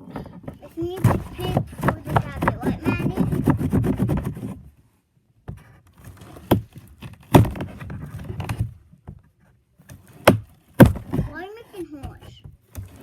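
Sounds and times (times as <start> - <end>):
scraping and rustling handling: 0.0 - 4.8, 5.5 - 13.0
sharp knocks: 0.8 - 4.5, 6.4 - 7.8, 10.2 - 13.0.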